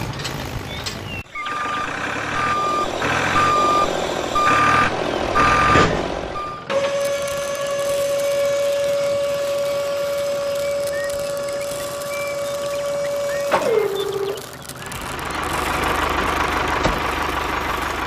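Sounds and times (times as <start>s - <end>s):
short noisy bursts: 0.0s - 18.0s
reversing alarm beeping: 1.3s - 14.5s.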